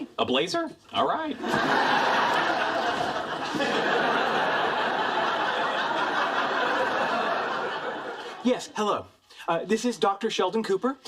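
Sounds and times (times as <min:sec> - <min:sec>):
audience laughing: 0:01.4 - 0:08.5.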